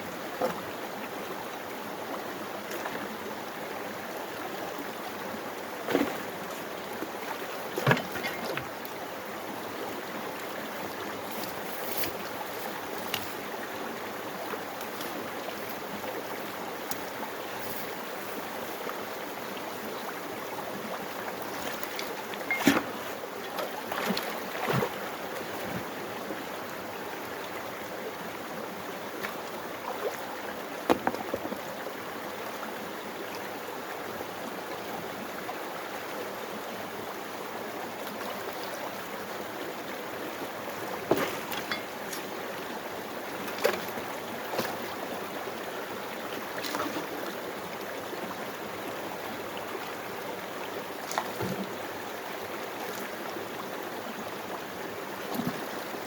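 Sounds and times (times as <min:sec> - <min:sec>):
water rushing through sluice: 0:00.0 - 0:56.0
knocks of stones or shovel: 0:41.1 - 0:42.3.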